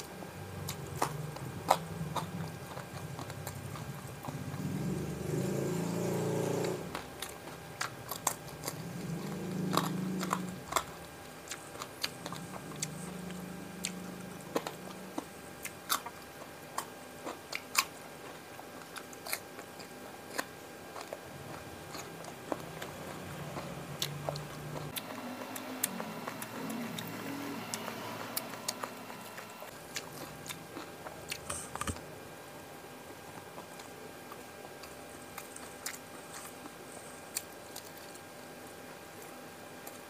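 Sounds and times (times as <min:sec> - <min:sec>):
chewing crunchy food: 0:00.0 - 0:32.1, 0:33.0 - 0:40.0.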